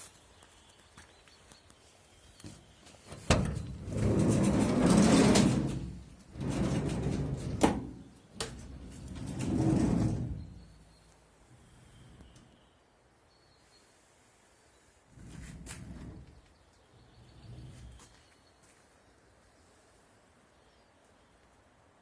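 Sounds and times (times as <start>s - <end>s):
sliding door running along track: 3.2s - 10.8s.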